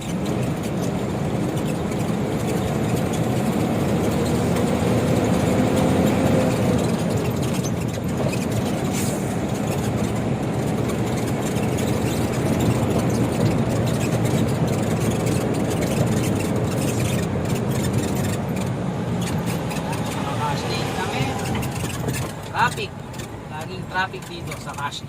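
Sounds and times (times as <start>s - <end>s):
diesel engine drone from cab: 0.0s - 25.0s.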